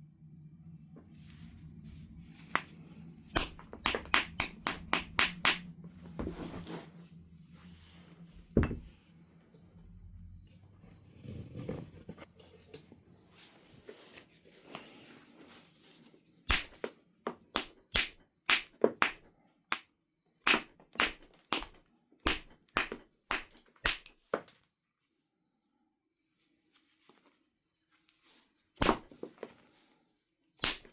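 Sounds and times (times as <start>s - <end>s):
flint knapping strikes: 3.4s - 5.6s, 16.5s - 16.8s, 30.6s - 30.9s.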